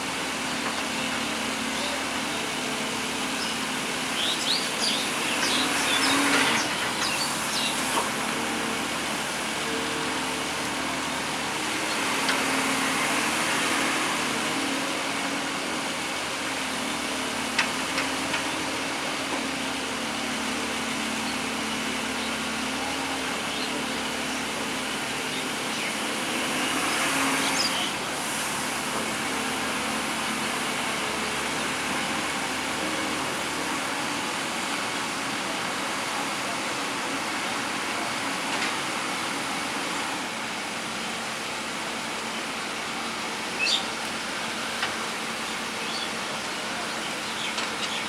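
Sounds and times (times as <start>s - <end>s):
excavator diesel engine running: 0.0s - 48.0s.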